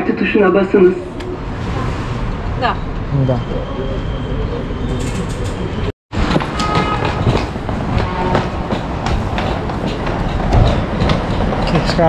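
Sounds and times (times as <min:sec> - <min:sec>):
train rumble: 0:00.6 - 0:12.0
wheels knocking: 0:06.2 - 0:12.0.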